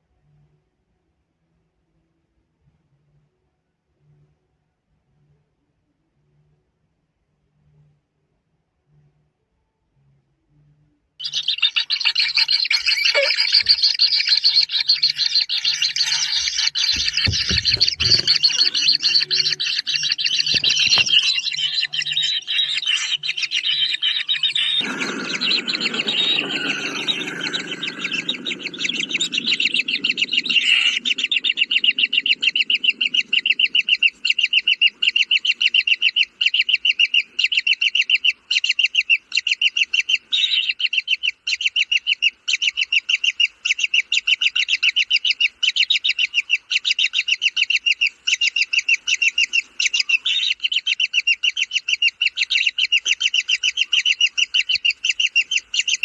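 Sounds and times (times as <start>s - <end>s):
bird chick chirping: 11.2s - 56.0s
low rough noise: 24.7s - 34.2s.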